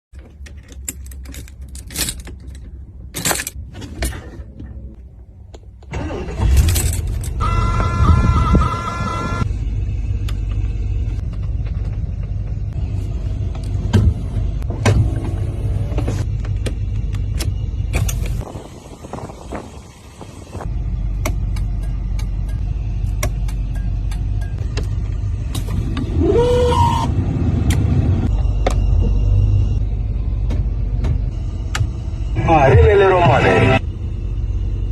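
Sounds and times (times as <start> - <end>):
car engine rumbling: 0.1 - 34.9
clicks and jangling: 0.2 - 4.3
steady high whine: 28.0 - 34.9.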